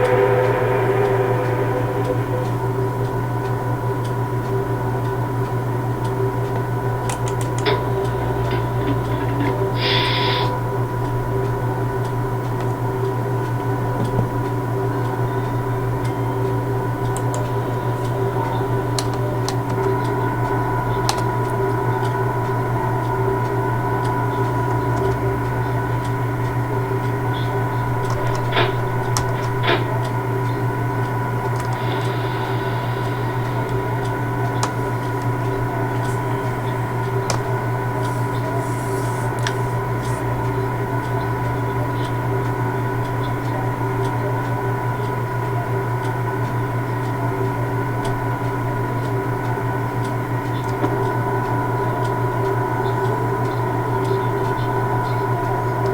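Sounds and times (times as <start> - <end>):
railway vehicles humming: 0.0 - 55.9
sharp metallic clicks: 27.8 - 38.6.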